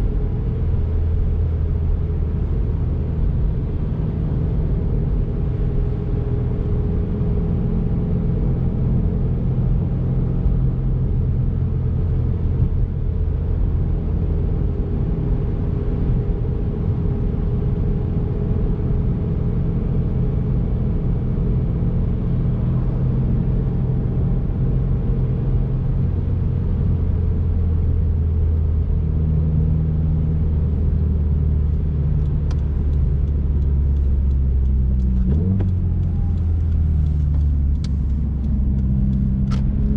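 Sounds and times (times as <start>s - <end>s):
car engine running: 30.4s - 39.9s
tyre and road noise: 30.7s - 39.9s.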